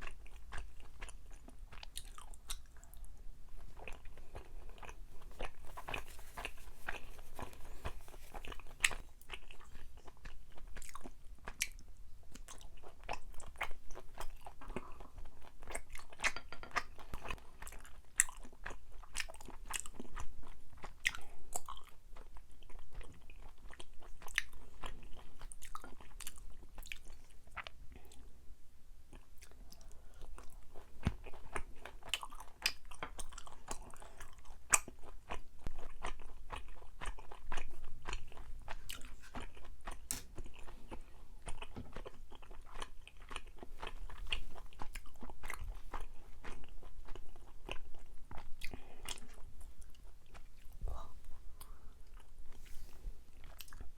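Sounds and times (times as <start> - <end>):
chewing sticky food: 0.0 - 28.3, 29.1 - 53.9.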